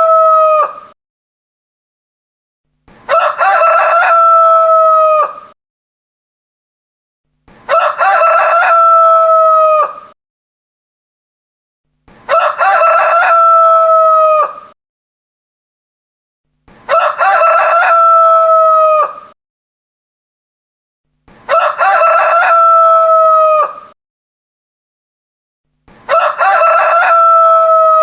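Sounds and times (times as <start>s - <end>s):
rooster crowing: 0.0s - 0.9s, 3.1s - 5.6s, 7.7s - 10.2s, 12.3s - 14.8s, 16.9s - 19.4s, 21.5s - 24.0s, 26.1s - 28.0s.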